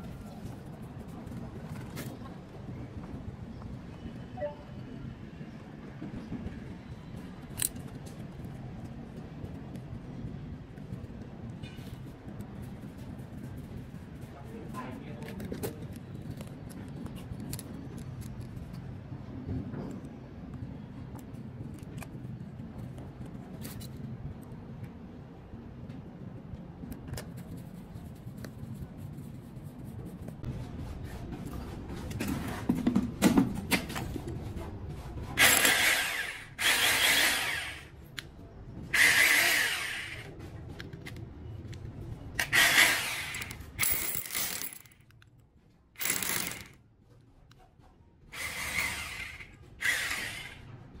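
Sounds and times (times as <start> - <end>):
electric drill bursts: 35.4 - 37.9, 39.0 - 40.3, 42.4 - 44.8, 46.0 - 46.7, 48.4 - 50.6
handling noise: 43.2 - 45.4, 46.0 - 46.9.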